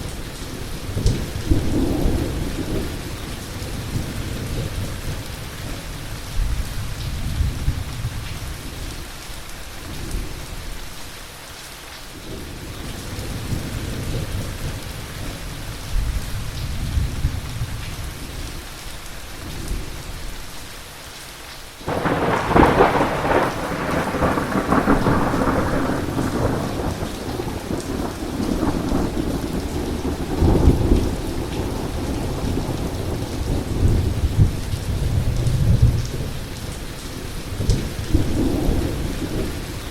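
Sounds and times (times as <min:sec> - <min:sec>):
steady rain: 0:00.0 - 0:39.9
loud thunderclap: 0:21.9 - 0:36.4
rolling thunder: 0:21.9 - 0:36.5.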